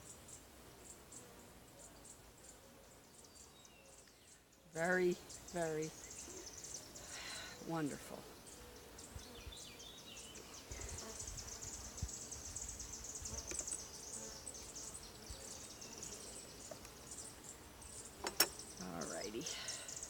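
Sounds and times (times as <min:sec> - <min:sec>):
honeybees humming: 0:00.0 - 0:20.0
high insect chirping: 0:08.4 - 0:20.0.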